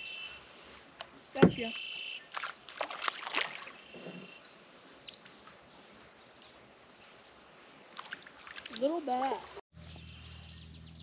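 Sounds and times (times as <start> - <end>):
small birds singing: 0.0 - 0.4, 1.3 - 2.4, 3.6 - 8.0, 9.0 - 11.0.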